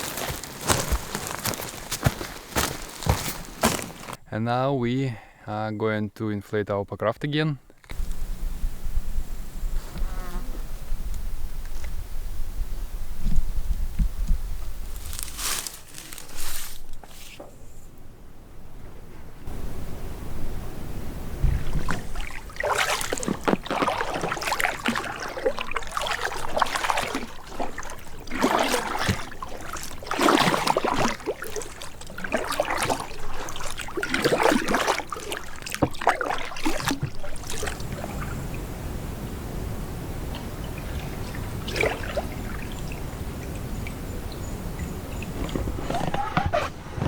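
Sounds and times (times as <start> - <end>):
water splashing and trickling: 0.0 - 4.2, 14.8 - 17.4, 19.4 - 46.6.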